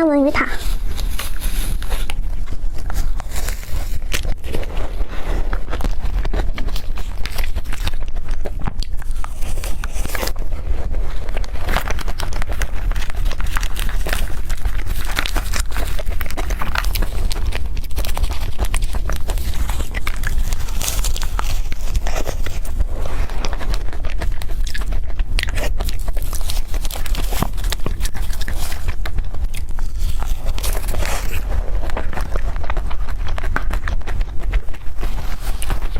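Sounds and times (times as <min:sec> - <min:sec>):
chewing and biting: 0:00.4 - 0:35.9
mouth clicks and smacks: 0:00.4 - 0:35.9.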